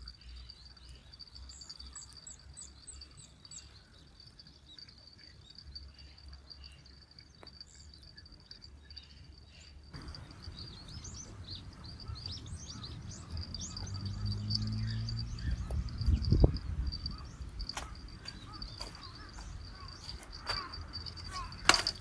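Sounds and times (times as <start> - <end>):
small birds chirping: 0.0 - 22.0
high insect drone: 9.7 - 22.0.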